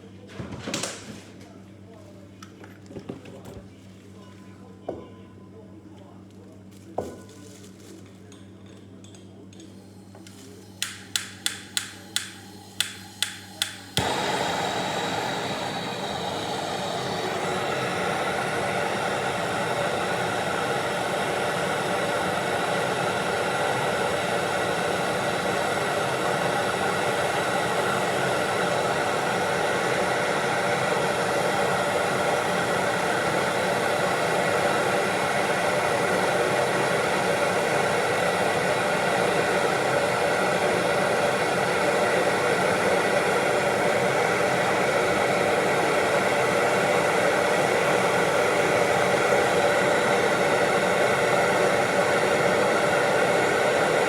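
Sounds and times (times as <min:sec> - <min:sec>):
blower motor rushing: 0:09.9 - 0:54.0
sharp clicks: 0:10.8 - 0:14.0.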